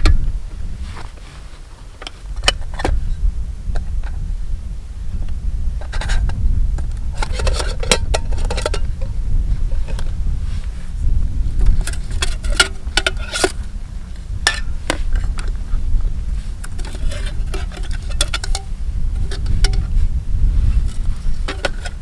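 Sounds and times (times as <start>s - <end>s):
low rumble: 7.8s - 12.2s, 13.5s - 22.0s
objects clicking and clinking: 16.7s - 19.8s, 20.9s - 22.0s.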